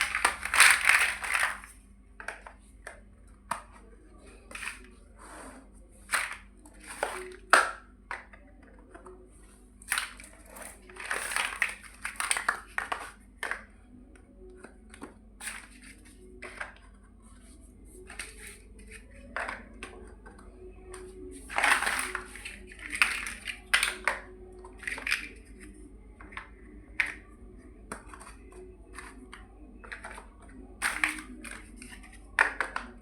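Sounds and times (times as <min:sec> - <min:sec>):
plastic bricks snapping together: 0:00.0 - 0:03.8, 0:06.1 - 0:08.4, 0:10.9 - 0:13.7, 0:21.0 - 0:25.6, 0:30.8 - 0:33.0.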